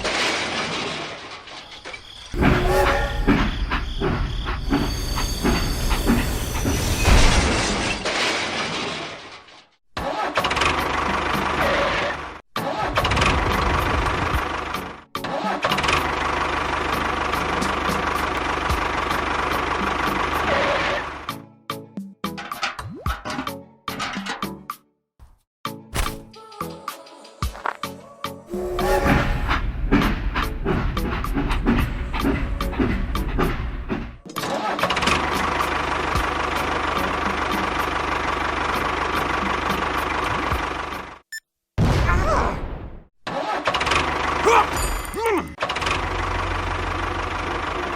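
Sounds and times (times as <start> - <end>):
engine running: 15.7 - 21.3, 34.9 - 41.2, 43.8 - 47.9.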